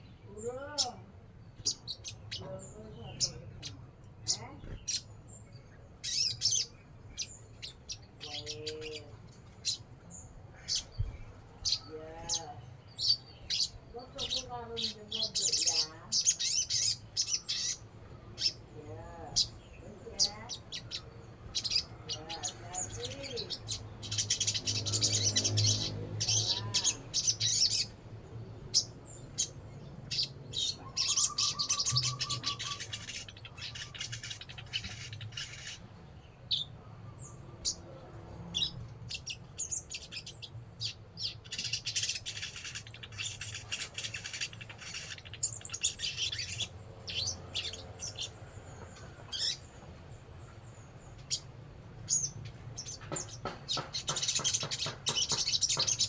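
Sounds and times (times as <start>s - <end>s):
songbird singing chirps and trills: 0.0s - 56.0s.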